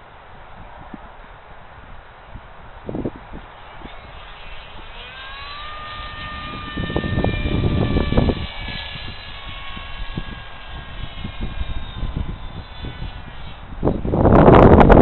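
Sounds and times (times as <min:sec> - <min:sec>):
electric propeller plane whining: 0:00.0 - 0:15.0
wind buffeting microphone: 0:00.0 - 0:15.0.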